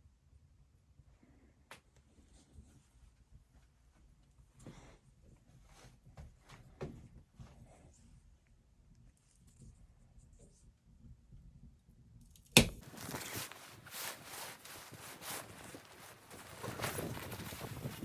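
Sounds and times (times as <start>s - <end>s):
crunching and scraping: 12.5s - 18.0s
sharp knock: 12.6s - 12.8s.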